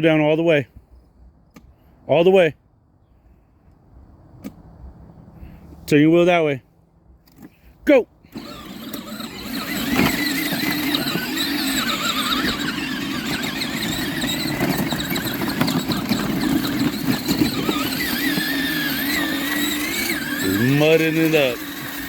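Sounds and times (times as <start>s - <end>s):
electric toy truck motor whining: 8.3s - 22.0s.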